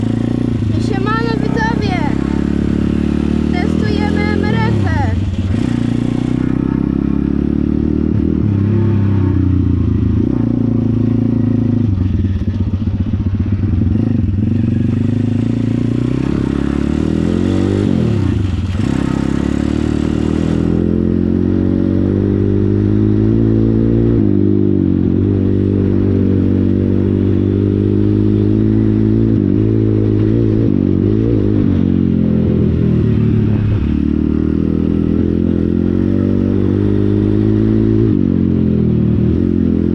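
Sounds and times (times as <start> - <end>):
small motorcycle engine running: 0.0 - 7.8, 11.2 - 20.8.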